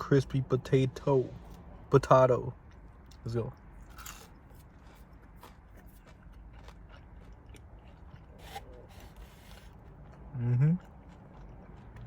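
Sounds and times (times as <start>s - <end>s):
faint chewing of crispy food: 2.5s - 12.0s.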